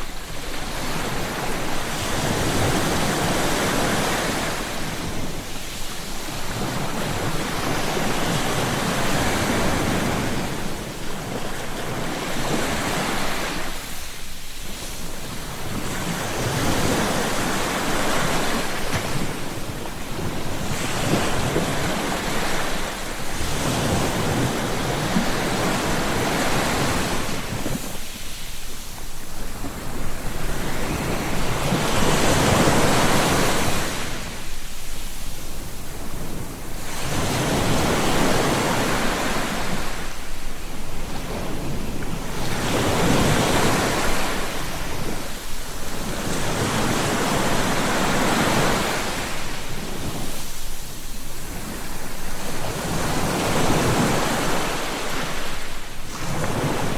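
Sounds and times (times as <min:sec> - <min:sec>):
waves breaking and washing in: 0:00.0 - 0:56.9.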